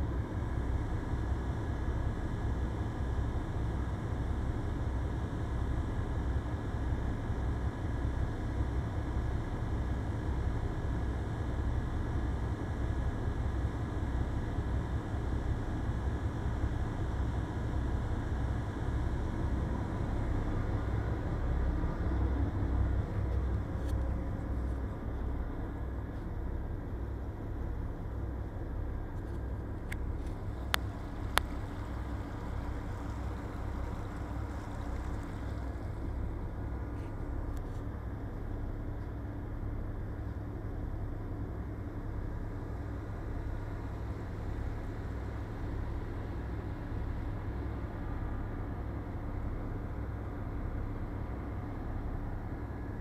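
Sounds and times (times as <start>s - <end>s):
ship machinery rumbling: 19.6s - 40.1s.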